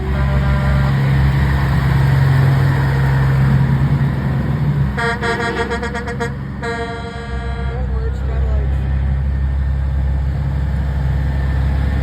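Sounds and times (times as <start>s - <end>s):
truck horn short toots: 0.0s - 1.0s, 5.0s - 7.9s
trucks passing with deep drone: 0.0s - 12.0s.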